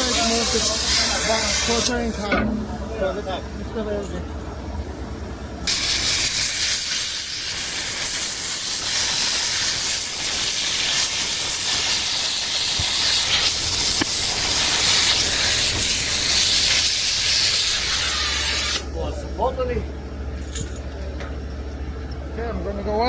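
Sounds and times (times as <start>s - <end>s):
pressurized gas hissing: 0.0s - 2.2s, 5.6s - 18.9s.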